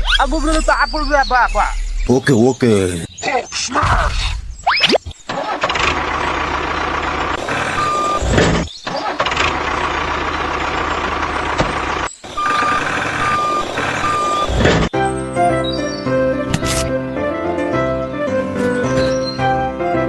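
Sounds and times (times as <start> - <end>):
truck engine running: 5.3 - 14.9
reversing alarm beeping: 7.4 - 8.3, 12.4 - 14.9.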